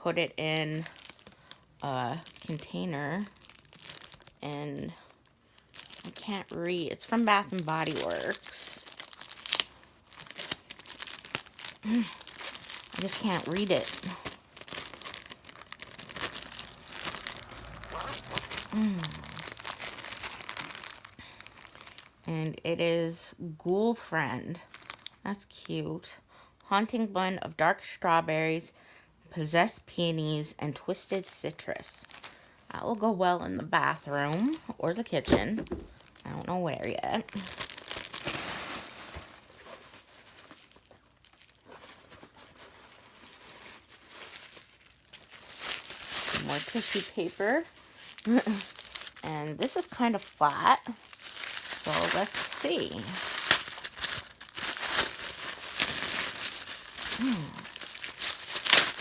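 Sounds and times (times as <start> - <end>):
packaging crinkling and rustling: 0.6 - 22.3, 24.6 - 25.2, 32.0 - 32.5, 34.0 - 59.0
person humming: 17.9 - 19.4, 57.2 - 57.7.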